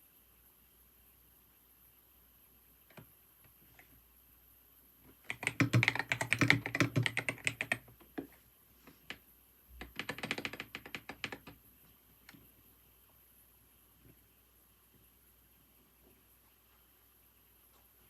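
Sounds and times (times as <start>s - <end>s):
typing on computer keyboard: 5.2s - 8.3s, 9.8s - 11.6s.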